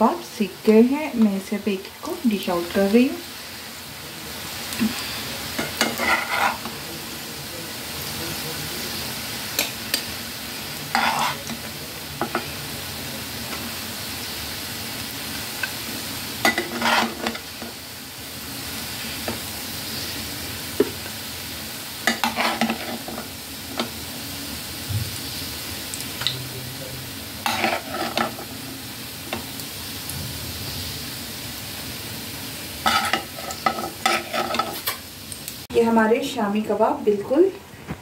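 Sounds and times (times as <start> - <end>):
oil sizzling in a pan: 0.0 - 38.0
metal spatula scraping a pan: 4.9 - 6.8, 10.8 - 12.5, 16.4 - 17.8, 22.0 - 23.9, 27.4 - 28.6, 32.8 - 35.1.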